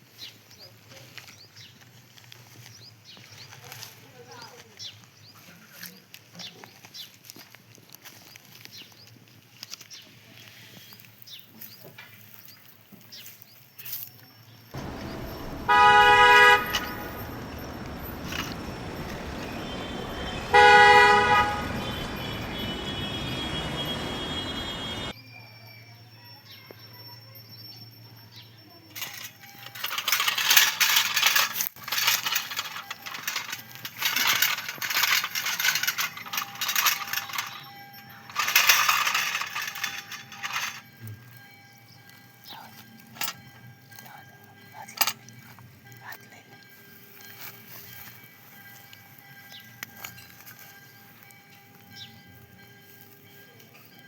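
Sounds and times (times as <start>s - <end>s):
horn honks: 14.8s - 25.1s
low engine rumble: 14.8s - 25.1s.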